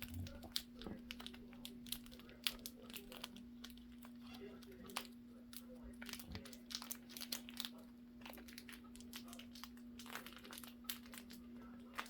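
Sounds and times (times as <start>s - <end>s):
faint steady hum: 0.0s - 12.0s
light clicks and crackles: 0.0s - 12.0s
packaging crinkling: 0.0s - 12.0s.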